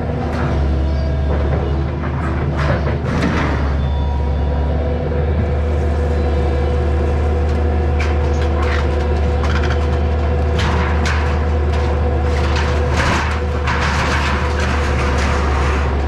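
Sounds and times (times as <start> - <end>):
crunches and clanks of demolition: 0.0 - 4.0, 7.4 - 16.0
excavator engine running: 0.0 - 16.0.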